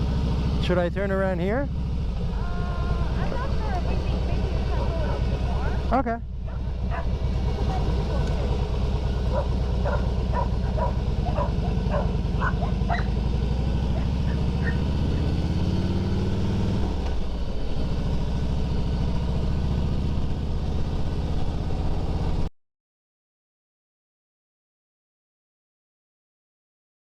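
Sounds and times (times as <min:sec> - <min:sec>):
motorcycle engine accelerating: 0:00.0 - 0:22.5
dog barking: 0:06.4 - 0:07.2, 0:09.2 - 0:13.2, 0:13.9 - 0:14.9.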